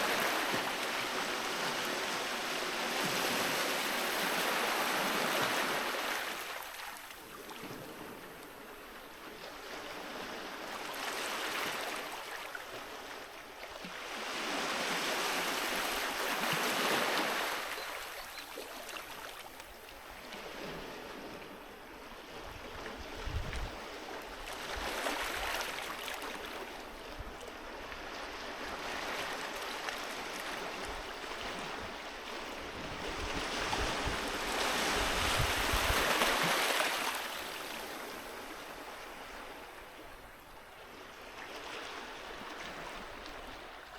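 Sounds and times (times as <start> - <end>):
sea waves washing onto shore: 0.0 - 9.1, 23.6 - 39.9.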